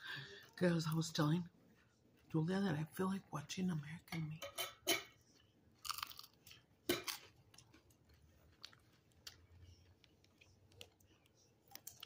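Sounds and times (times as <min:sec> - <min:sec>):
crispy food crunch: 0:05.7 - 0:12.0
faint chewing clicks: 0:07.5 - 0:12.0.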